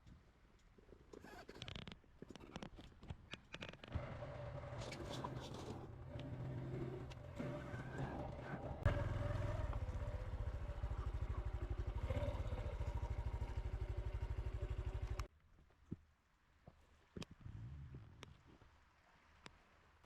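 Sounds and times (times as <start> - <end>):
motorcycle engine idling: 3.9 - 15.3.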